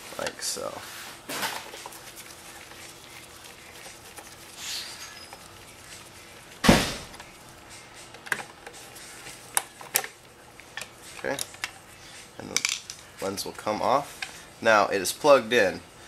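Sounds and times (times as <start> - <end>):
loud sudden thump: 6.6 - 7.1.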